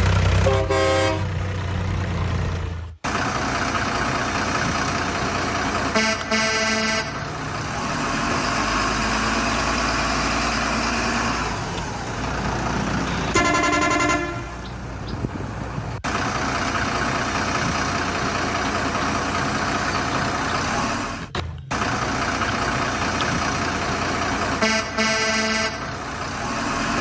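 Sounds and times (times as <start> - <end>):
vehicle engine running: 0.0 - 27.0
horn honks: 0.3 - 1.4, 5.7 - 8.5, 13.0 - 14.8, 24.3 - 26.2.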